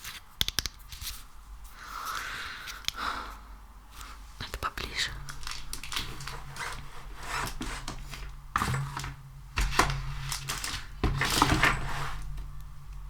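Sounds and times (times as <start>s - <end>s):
hands handling sticky material: 5.1s - 11.4s.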